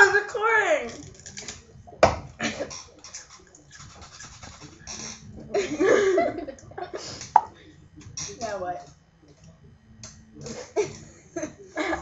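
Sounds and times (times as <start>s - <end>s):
rustling and crackling: 2.6s - 5.5s.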